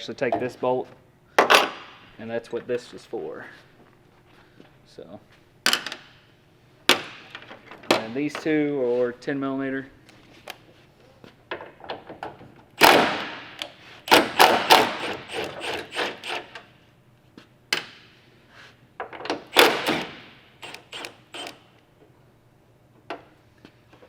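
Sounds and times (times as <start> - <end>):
hand tools clicking on metal bolts: 12.8 - 16.7, 19.5 - 21.6.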